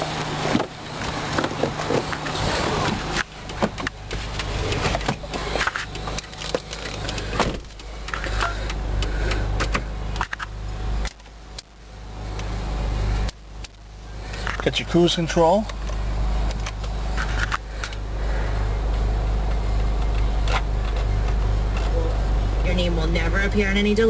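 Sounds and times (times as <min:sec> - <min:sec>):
steady low rumble: 0:00.0 - 0:24.0
clicks and knocks in car cabin: 0:00.4 - 0:08.8.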